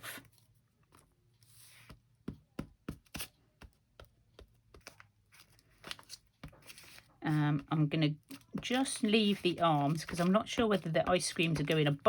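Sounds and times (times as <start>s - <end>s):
soft paper rub: 0.0s - 2.0s, 4.8s - 7.7s, 8.3s - 11.9s
paper rustling: 4.7s - 7.6s, 8.3s - 12.0s.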